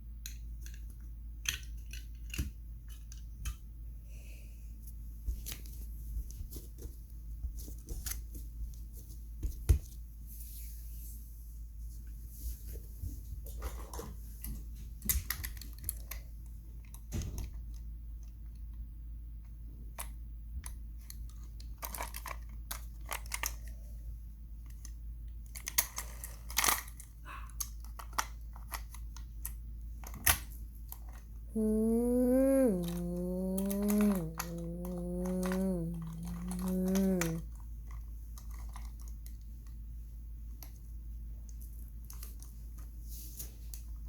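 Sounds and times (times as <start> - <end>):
toy cars clicking and tapping: 0.2 - 3.6, 21.1 - 23.7, 24.7 - 30.4
steady low hum: 31.5 - 37.5.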